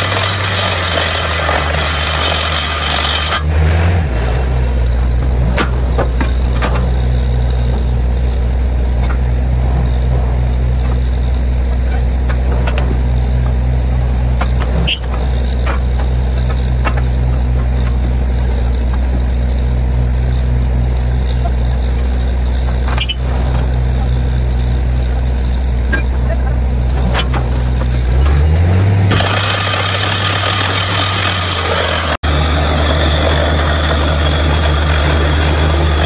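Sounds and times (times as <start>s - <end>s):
drilling rig engine running: 0.0s - 36.0s.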